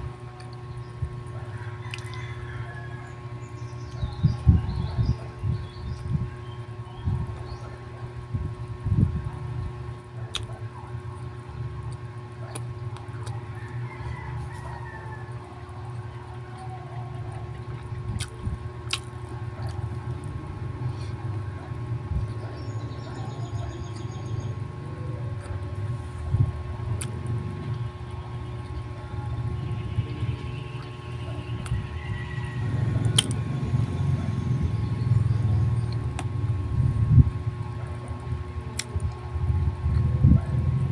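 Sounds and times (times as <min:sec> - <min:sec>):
steady low hum: 0:00.0 - 0:40.9
chewing bread: 0:00.1 - 0:04.2, 0:07.8 - 0:24.1, 0:30.7 - 0:34.6, 0:37.5 - 0:40.7
mouth clicks: 0:33.0 - 0:33.4.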